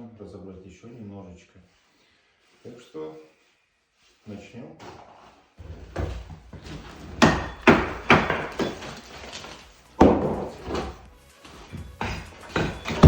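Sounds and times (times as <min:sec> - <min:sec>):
hammer striking brick: 0:05.9 - 0:08.9, 0:10.0 - 0:11.0, 0:11.9 - 0:13.0.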